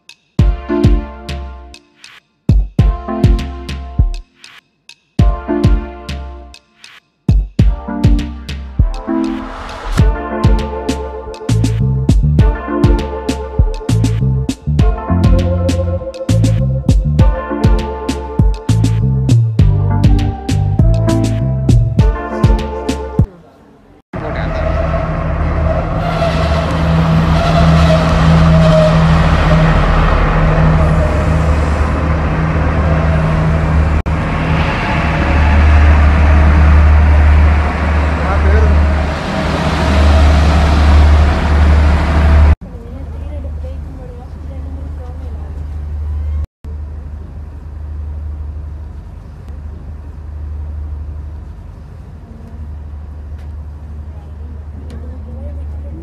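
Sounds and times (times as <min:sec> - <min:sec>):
diesel train engine drone: 0:09.0 - 0:56.0.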